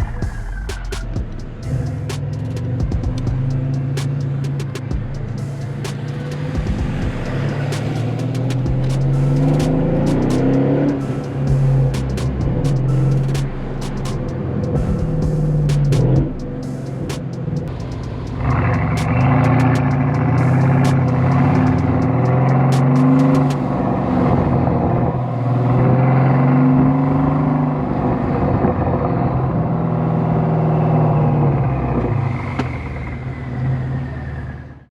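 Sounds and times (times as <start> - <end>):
loud car engine revving: 0.0 - 34.7
sharp clicks: 0.7 - 6.6, 7.2 - 14.8, 15.5 - 23.6.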